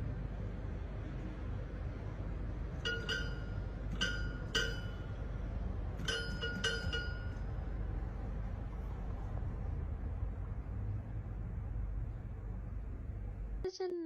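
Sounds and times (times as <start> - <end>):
ringing bell-like notes: 2.8 - 5.3, 6.0 - 7.6.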